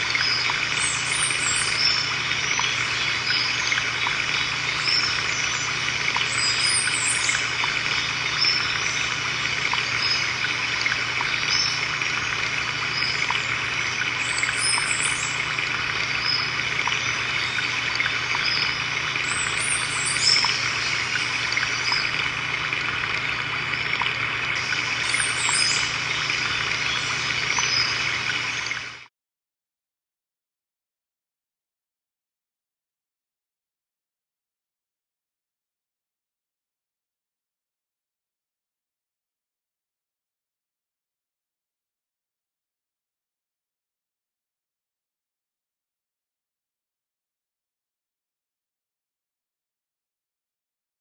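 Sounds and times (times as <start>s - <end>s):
water trickling: 0.0s - 29.1s.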